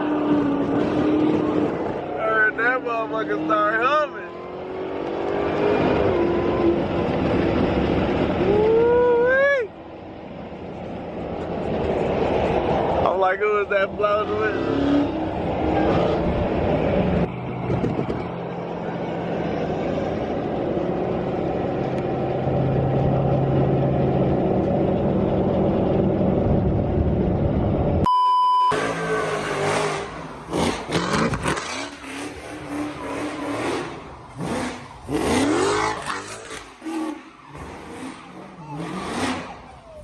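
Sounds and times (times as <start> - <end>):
car engines revving: 0.0 - 28.0, 28.7 - 40.0
electronic beep: 28.1 - 28.8.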